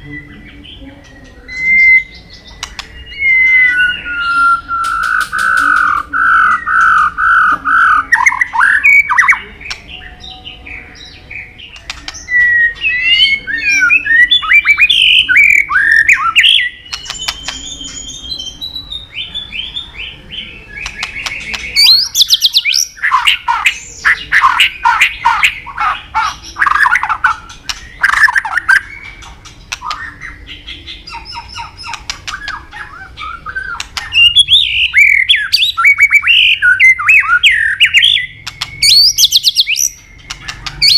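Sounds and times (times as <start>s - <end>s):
songbird singing loud song: 0.0s - 40.9s.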